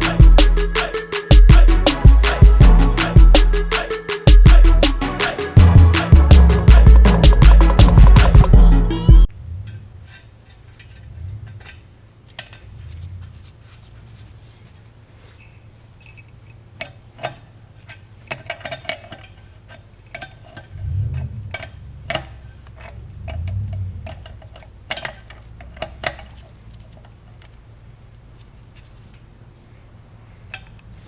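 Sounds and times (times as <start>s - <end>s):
metal parts clinking: 15.4s - 17.0s.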